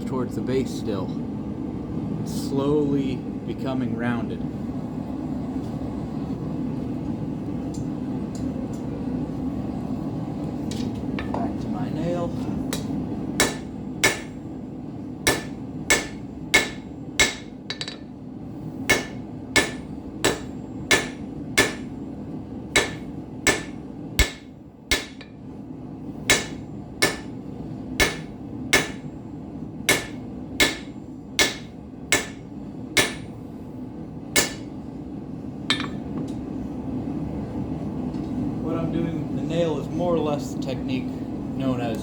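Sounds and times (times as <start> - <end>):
gas forge roaring: 0.0 - 42.0
hammer striking steel on anvil: 12.7 - 14.4, 15.3 - 18.1, 18.9 - 22.0, 22.7 - 25.4, 26.3 - 27.4, 28.0 - 29.1, 29.9 - 33.4, 34.4 - 34.7, 35.7 - 36.1.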